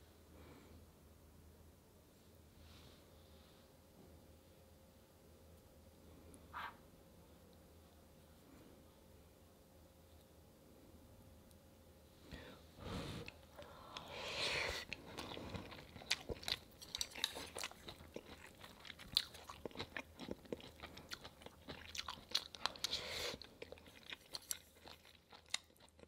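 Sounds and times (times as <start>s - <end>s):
person chewing food: 12.9s - 26.0s.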